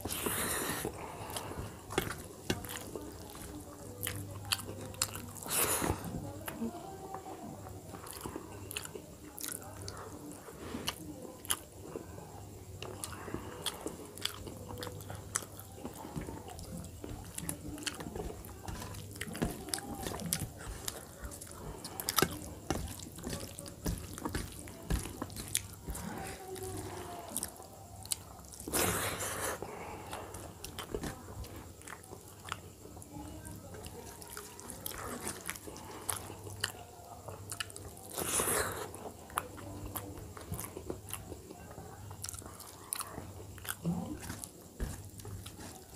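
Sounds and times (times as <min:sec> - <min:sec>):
person chewing and lip-smacking: 0:07.9 - 0:09.6, 0:12.8 - 0:33.0, 0:37.5 - 0:41.4, 0:42.2 - 0:45.9
fingers squishing rice: 0:12.8 - 0:33.1.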